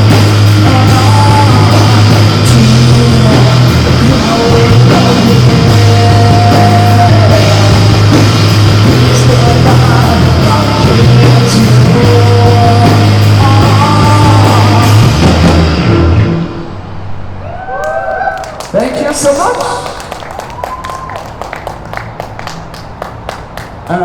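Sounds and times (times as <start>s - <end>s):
live rock band playing: 0.0s - 16.3s
heavy bass line: 0.0s - 17.1s.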